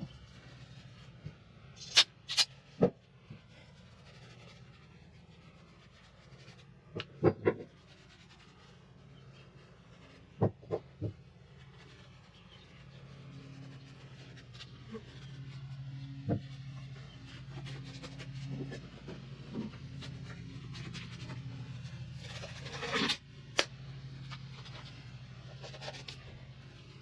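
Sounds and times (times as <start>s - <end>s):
metal parts clicking: 1.8s - 2.5s
light rubbing: 3.3s - 27.0s.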